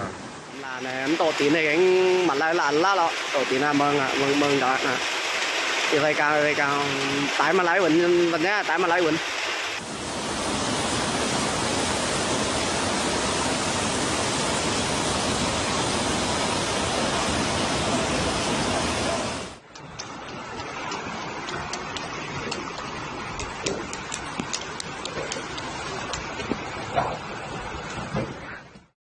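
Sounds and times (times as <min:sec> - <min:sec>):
floodwater rushing: 0:00.0 - 0:28.5.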